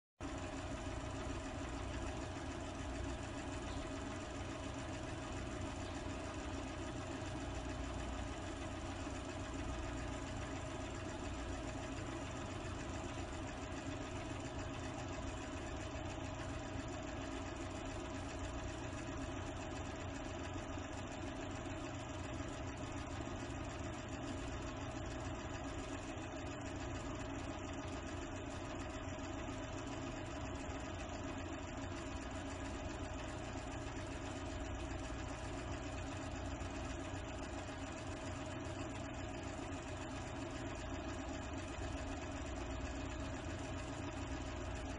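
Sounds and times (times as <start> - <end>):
steady machine hum: 0.2 - 44.9.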